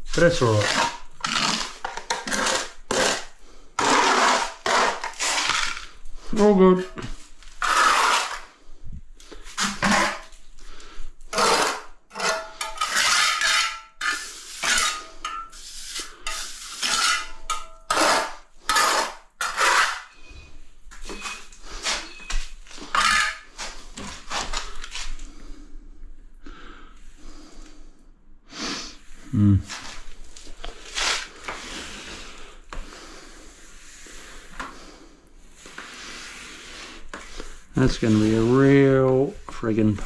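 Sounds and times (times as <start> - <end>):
metal hand tool scraping: 0.2 - 6.5, 7.5 - 8.6, 9.5 - 10.4, 11.3 - 25.1, 35.8 - 39.9.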